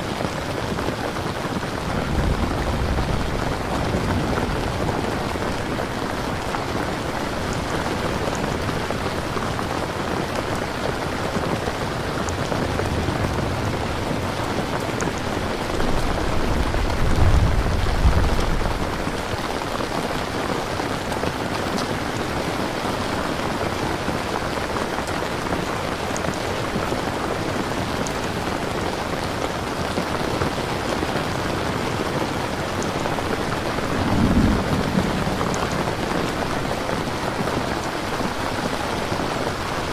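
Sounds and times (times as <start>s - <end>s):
rain pattering: 0.0s - 39.9s
low rumble of thunder: 0.6s - 21.4s, 30.5s - 39.9s.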